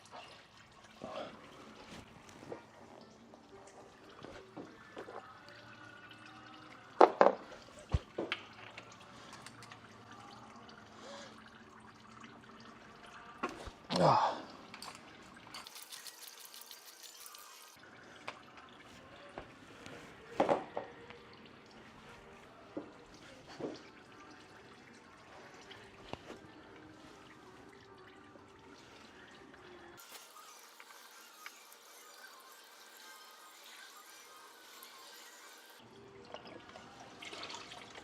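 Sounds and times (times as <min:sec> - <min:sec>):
oil trickling and dripping: 0:00.0 - 0:20.1, 0:20.8 - 0:30.0.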